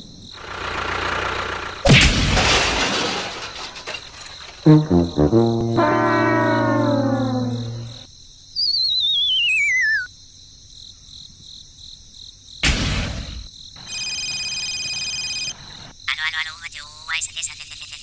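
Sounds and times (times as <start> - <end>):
high electronic tone: 4.7 - 8.0
short loud noise burst: 4.7 - 8.0
whistle sliding down in pitch: 4.7 - 8.0, 8.6 - 10.1.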